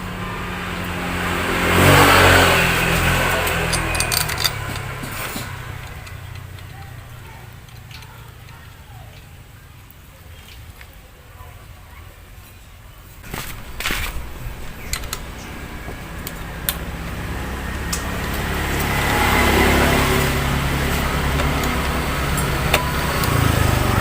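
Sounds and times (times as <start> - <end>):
vehicle engine passing by: 0.0 - 8.1, 13.2 - 24.0.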